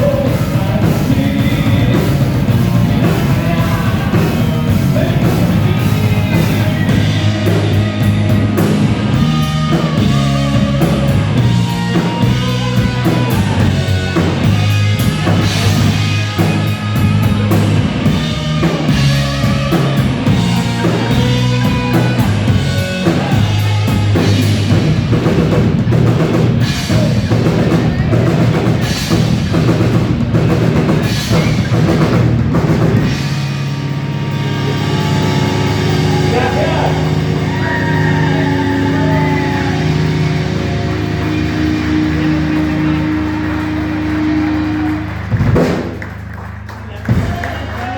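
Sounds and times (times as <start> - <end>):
drum kit beat: 0.0 - 47.9
live rock band playing: 0.0 - 47.9.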